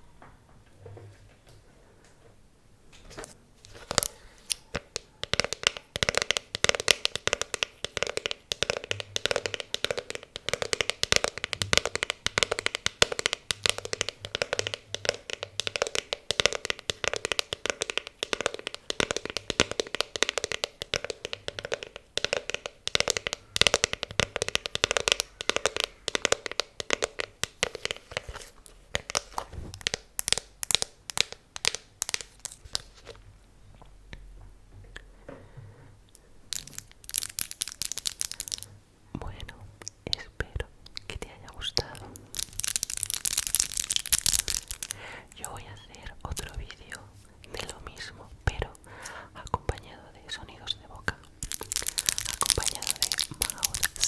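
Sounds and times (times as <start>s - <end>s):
fingers tapping quickly: 3.9s - 32.8s, 36.5s - 38.7s, 41.0s - 47.0s, 51.4s - 54.0s.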